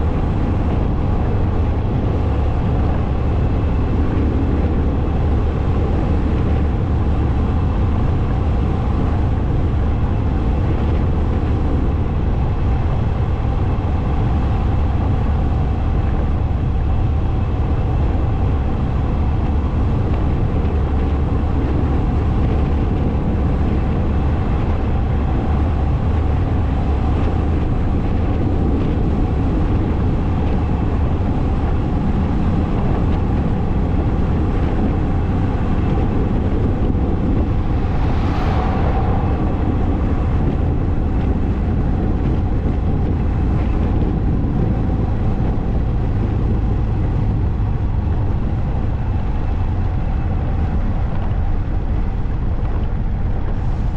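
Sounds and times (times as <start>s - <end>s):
motorcycle engine rumbling: 19.0s - 50.8s.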